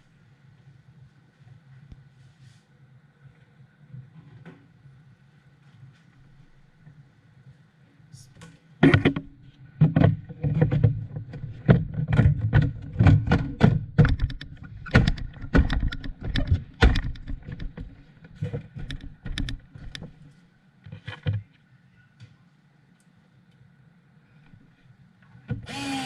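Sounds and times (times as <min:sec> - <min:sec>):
hard parts knocking and clattering: 0:08.8 - 0:20.2.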